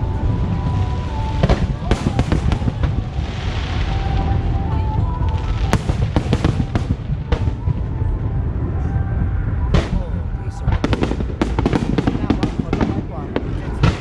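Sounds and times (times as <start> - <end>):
hissing crackle: 0.0 - 14.0
sharp firework cracks: 5.3 - 7.7
firework shells booming: 5.7 - 7.7.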